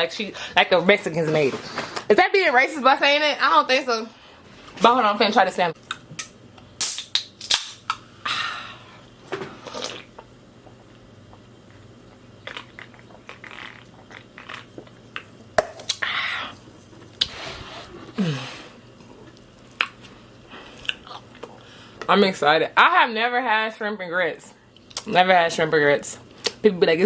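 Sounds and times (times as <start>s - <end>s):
person chewing: 12.4s - 18.4s, 19.0s - 21.7s.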